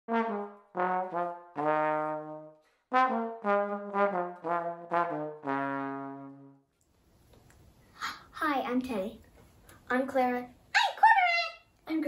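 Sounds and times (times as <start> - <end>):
solo trombone melody: 0.1 - 6.7.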